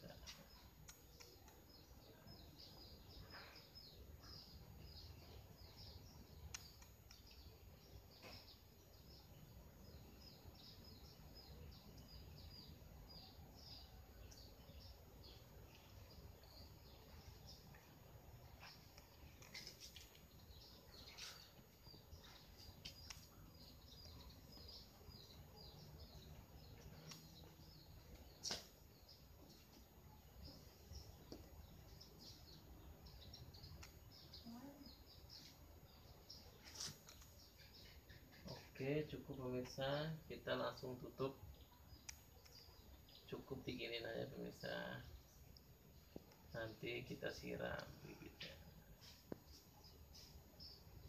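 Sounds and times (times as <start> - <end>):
small birds chirping: 0.0 - 51.0
soft clicks: 0.2 - 1.7, 6.4 - 7.4
faint sharp clicks: 6.5 - 7.4, 42.0 - 42.7.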